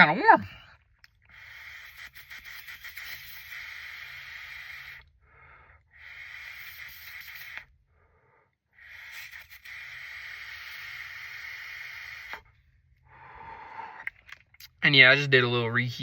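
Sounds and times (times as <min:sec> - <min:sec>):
torch lighter hissing: 0:01.3 - 0:05.0, 0:06.0 - 0:07.7, 0:08.8 - 0:12.5.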